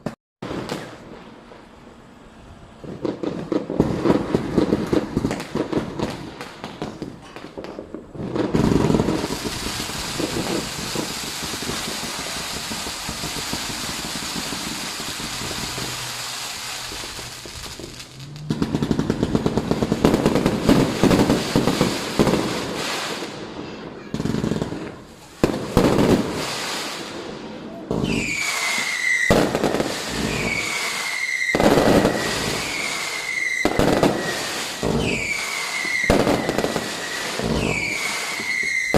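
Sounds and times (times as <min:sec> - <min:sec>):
firecrackers popping: 0:00.0 - 0:02.1, 0:02.7 - 0:38.9
steady hiss: 0:09.1 - 0:18.5.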